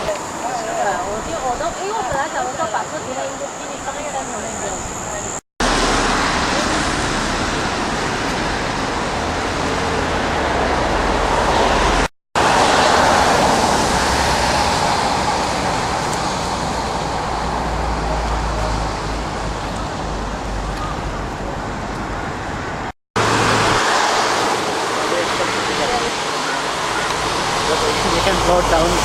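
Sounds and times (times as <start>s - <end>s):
traffic rumble: 0.0s - 29.0s
floodwater rushing: 5.6s - 20.4s, 23.2s - 29.0s.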